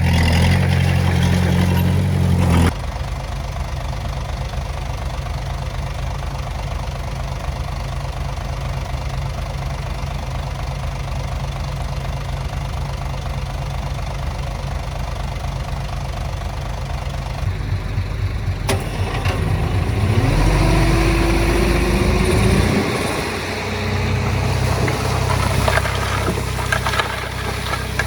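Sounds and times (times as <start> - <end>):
engine working harder: 0.0 - 3.0, 16.2 - 28.0
diesel engine idling: 0.0 - 28.0
rising whine: 17.4 - 27.8.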